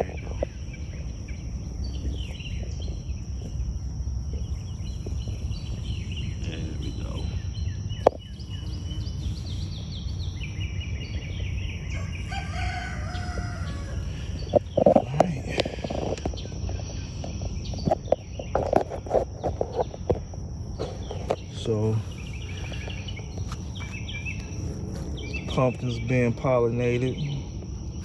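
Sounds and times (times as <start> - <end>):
bird chirps: 0.0 - 27.6
rooster crowing: 11.8 - 15.2.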